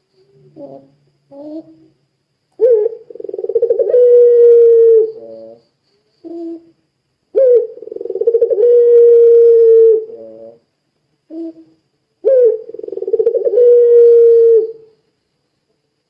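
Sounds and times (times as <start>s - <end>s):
dove cooing: 0.3s - 1.9s, 2.6s - 5.6s, 6.2s - 10.6s, 11.3s - 14.9s.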